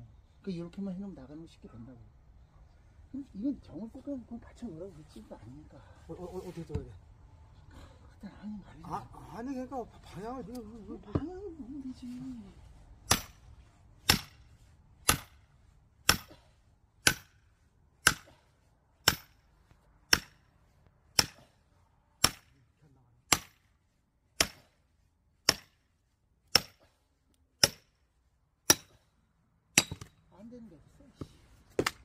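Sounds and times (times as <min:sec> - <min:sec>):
sledgehammer striking steel wedge: 0:13.0 - 0:19.4, 0:20.1 - 0:20.5, 0:21.1 - 0:21.6, 0:22.2 - 0:22.6, 0:23.3 - 0:23.7, 0:24.4 - 0:24.8, 0:25.4 - 0:25.8, 0:26.5 - 0:26.9, 0:27.6 - 0:28.0, 0:28.6 - 0:29.1, 0:29.7 - 0:30.2.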